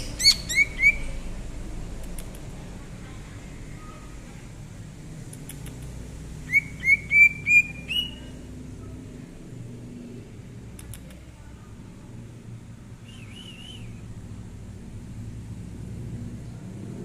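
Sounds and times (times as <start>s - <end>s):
bird whistling song: 0.0s - 1.2s, 6.5s - 8.3s, 13.0s - 14.0s.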